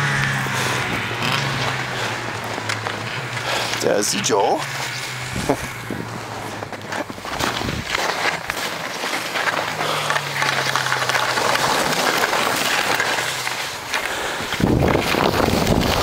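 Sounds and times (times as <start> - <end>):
skis scraping over snow: 0.0 - 16.0
wind on microphone: 5.2 - 6.3, 7.3 - 8.0, 14.5 - 16.0.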